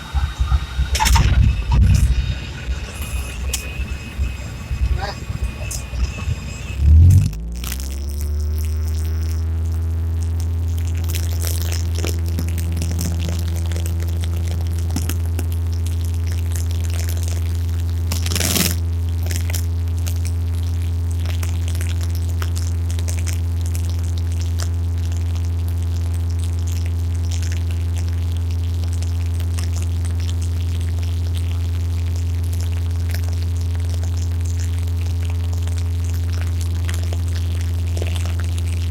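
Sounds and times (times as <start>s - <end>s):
propeller plane engine droning: 0.0s - 15.9s
brief crackle: 18.0s - 19.6s.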